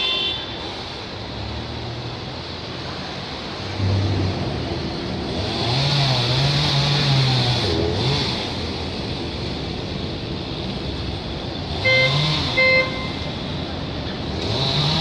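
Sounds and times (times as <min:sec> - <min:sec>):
street traffic: 0:00.0 - 0:15.0
vehicle engine revving: 0:03.7 - 0:08.8, 0:11.7 - 0:12.6, 0:14.3 - 0:15.0.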